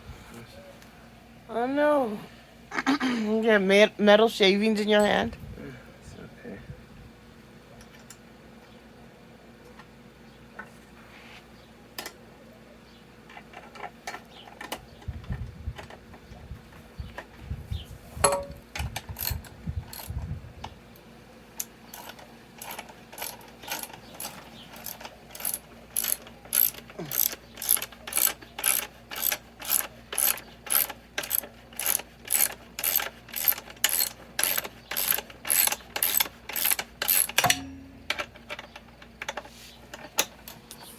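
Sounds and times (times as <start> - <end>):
ratchet wrench clicking: 19.2 - 20.1, 21.6 - 37.5.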